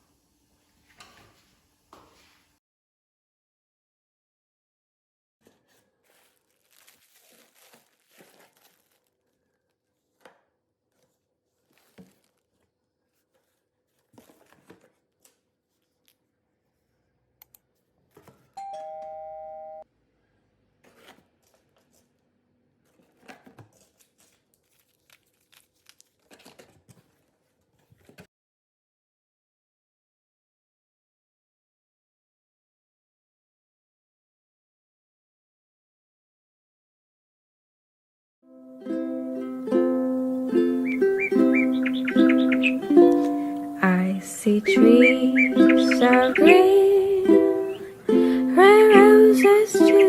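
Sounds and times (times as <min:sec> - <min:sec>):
rustling and crinkling: 0:05.4 - 0:17.0, 0:20.8 - 0:28.3
two-tone electronic chime: 0:18.6 - 0:19.8.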